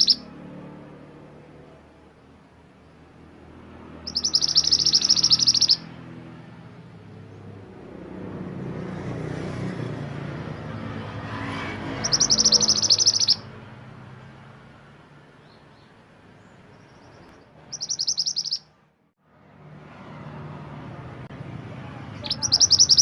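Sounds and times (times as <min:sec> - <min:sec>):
songbird high rapid trills: 0:00.0 - 0:00.4, 0:01.6 - 0:06.0, 0:10.4 - 0:13.6, 0:16.6 - 0:18.7, 0:22.2 - 0:23.0.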